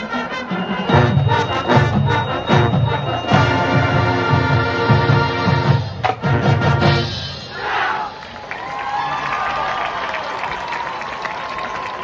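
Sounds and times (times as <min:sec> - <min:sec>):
marching band playing: 0:00.0 - 0:08.4.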